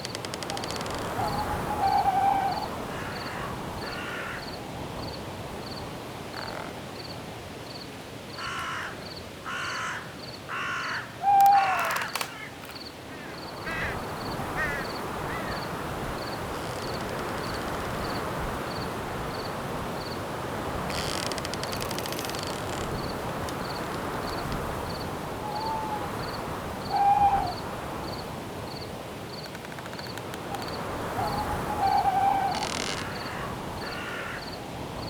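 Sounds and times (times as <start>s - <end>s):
wind hiss: 0.0s - 9.4s, 10.3s - 35.0s
cricket chirping: 0.0s - 34.6s
crow cawing: 2.4s - 4.6s, 8.4s - 15.7s, 31.4s - 34.6s.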